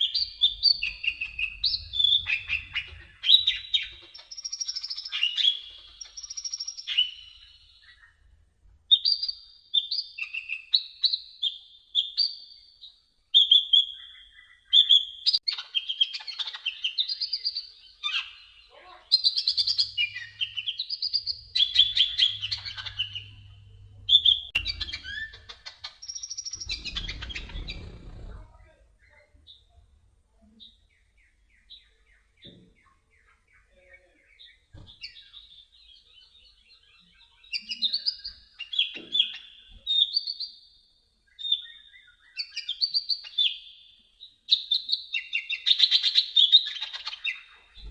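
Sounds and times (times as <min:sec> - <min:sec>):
bird chirping and whistling: 0:00.0 - 0:08.0, 0:13.4 - 0:28.2
low rumble: 0:19.8 - 0:25.2, 0:26.6 - 0:28.8.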